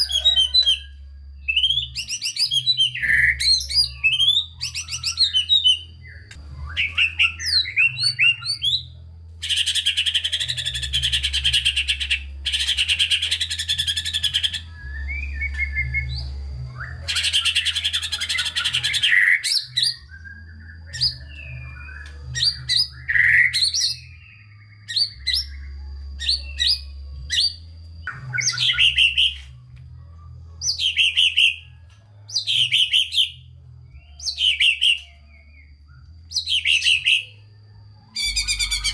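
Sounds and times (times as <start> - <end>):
low hum: 0.0 - 32.3, 37.2 - 38.9
songbird singing: 0.0 - 38.9.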